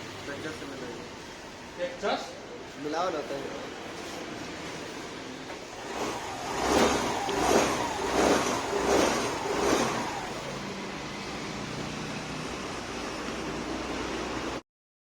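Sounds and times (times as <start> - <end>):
scooter engine revving and idling: 3.6 - 14.6.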